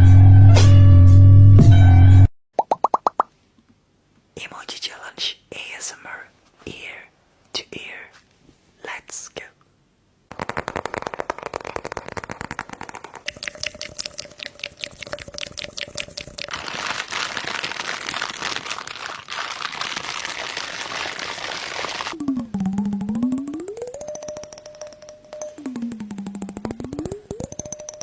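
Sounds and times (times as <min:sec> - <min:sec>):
slime squeezed wet pops: 0:10.3 - 0:22.0.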